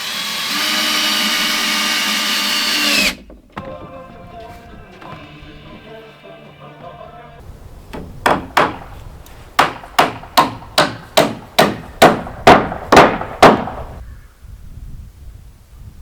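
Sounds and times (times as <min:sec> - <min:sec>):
hammer blows: 0:07.9 - 0:14.0.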